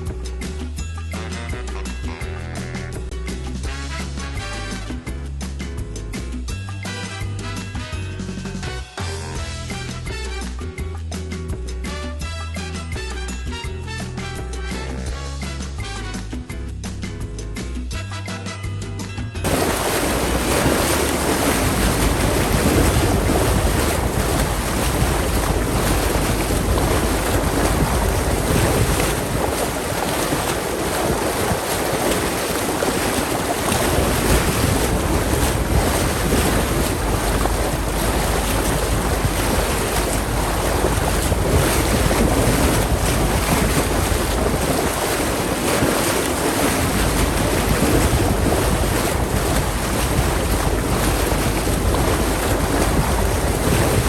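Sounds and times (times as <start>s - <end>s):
water rushing past hull: 19.4s - 54.0s
wind buffeting microphone: 19.4s - 54.0s.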